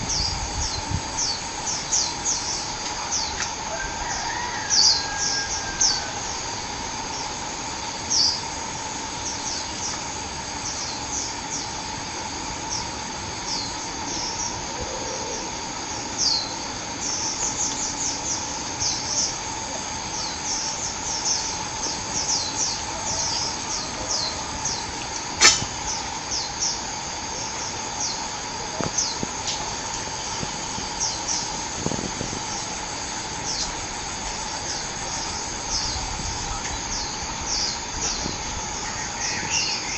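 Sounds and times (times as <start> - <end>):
insect-like hiss: 0.0 - 39.9
sharp click: 25.4 - 25.8.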